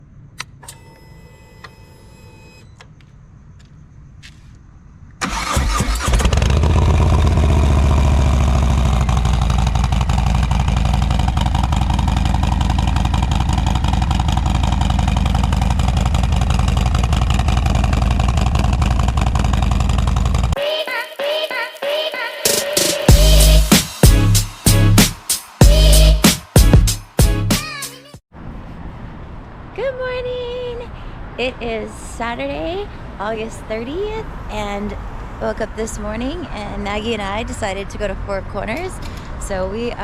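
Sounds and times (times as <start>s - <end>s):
faint electronic tone: 0.6s - 2.8s
motorcycle engine starting and idling: 5.2s - 20.6s.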